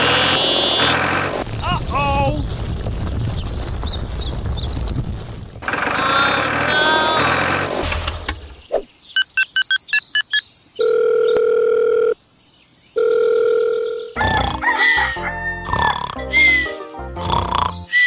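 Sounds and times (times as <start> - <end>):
long electronic tones: 14.2 - 18.0
music with pitched sound effects: 14.2 - 18.0.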